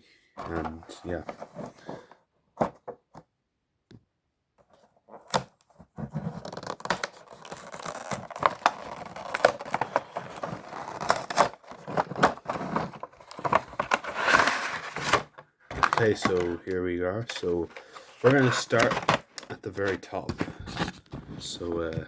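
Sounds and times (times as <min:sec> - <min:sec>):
packaging tearing and rustling: 0:05.1 - 0:21.5.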